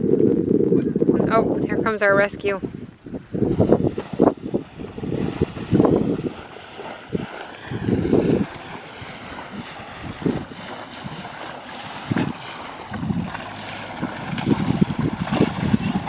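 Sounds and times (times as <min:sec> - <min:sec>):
wind buffeting microphone: 0:00.0 - 0:16.0
water washing: 0:03.5 - 0:16.0.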